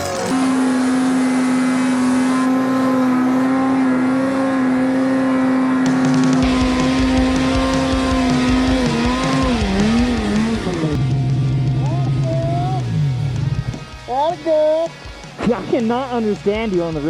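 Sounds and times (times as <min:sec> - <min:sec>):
snowmobile engine revving: 0:00.0 - 0:13.8
deep rumble: 0:06.4 - 0:13.9.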